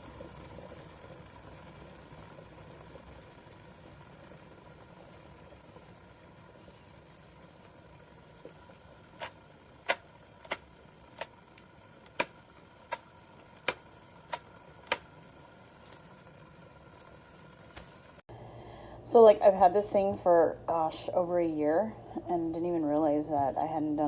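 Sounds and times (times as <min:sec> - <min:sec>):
kettle ticking: 0:00.0 - 0:18.2.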